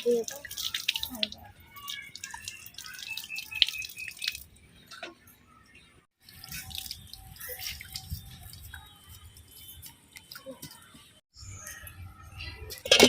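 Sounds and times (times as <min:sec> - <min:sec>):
wet dripping: 0:00.0 - 0:05.1, 0:06.2 - 0:10.4.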